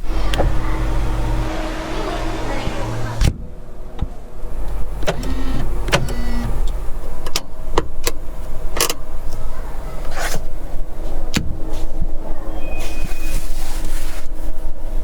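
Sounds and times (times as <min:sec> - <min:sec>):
steady low rumble: 0:00.0 - 0:09.3
sharp clicks and knocks: 0:04.0 - 0:08.2.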